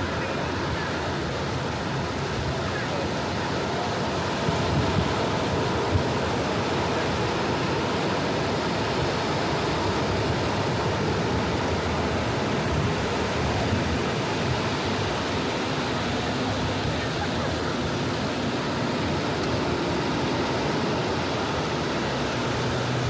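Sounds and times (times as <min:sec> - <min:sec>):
sea waves washing onto beach: 0:00.0 - 0:23.0.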